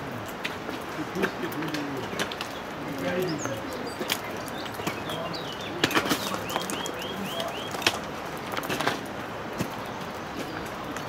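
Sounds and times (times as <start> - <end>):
trekking poles clicking on gravel: 0.3 - 11.0
songbird chirping: 1.0 - 8.2.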